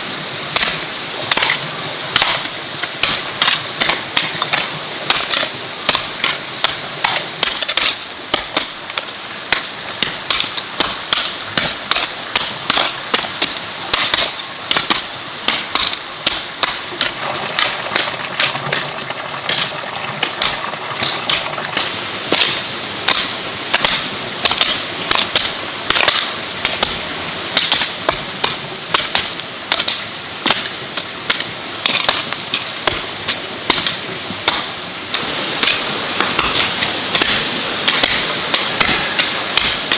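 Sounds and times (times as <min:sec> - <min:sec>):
sharp rhythmic knocks: 0:00.5 - 0:27.0, 0:27.6 - 0:39.9.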